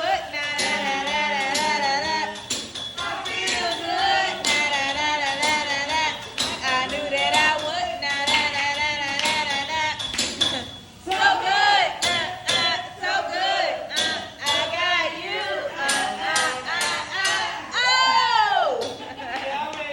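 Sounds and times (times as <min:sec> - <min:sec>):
person singing over a beat: 0:00.0 - 0:19.9.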